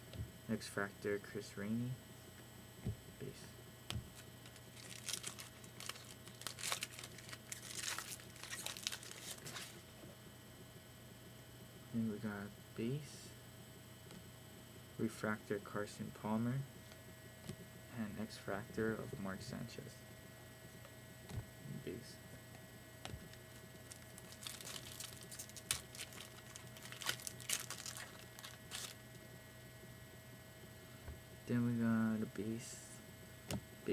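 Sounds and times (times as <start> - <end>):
faint electrical hum: 0.0 - 33.9
wrapper crinkling and tearing: 4.2 - 9.8, 23.2 - 29.0.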